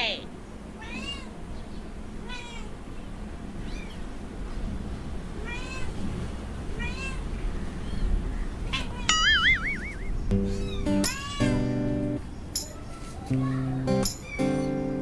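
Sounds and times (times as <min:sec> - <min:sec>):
kittens mewing: 0:00.8 - 0:01.4, 0:02.2 - 0:02.8, 0:03.6 - 0:04.1, 0:06.8 - 0:12.2, 0:13.0 - 0:15.0.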